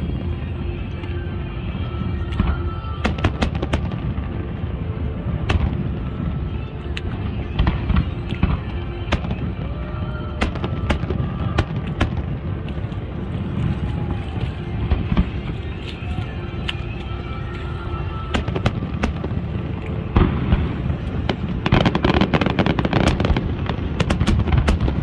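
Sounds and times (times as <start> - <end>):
steady low rumble: 0.0 - 25.0
fireworks bangs and crackles: 2.4 - 4.8, 5.4 - 6.4, 7.6 - 9.7, 10.4 - 12.9, 18.4 - 25.0.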